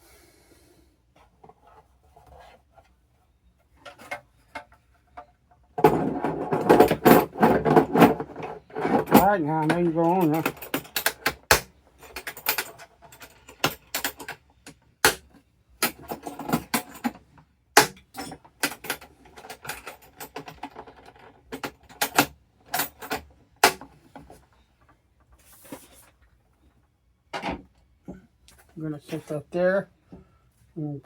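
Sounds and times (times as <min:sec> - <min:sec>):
metal tools clicking and clattering: 0:05.8 - 0:14.7, 0:15.8 - 0:17.3, 0:17.9 - 0:23.3.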